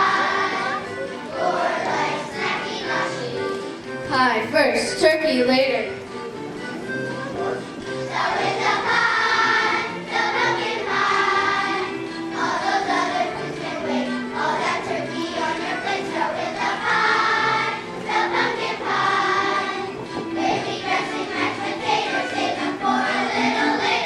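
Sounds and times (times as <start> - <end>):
children's choir singing: 0.0 - 3.9, 7.1 - 24.0
instrumental accompaniment: 0.0 - 24.0.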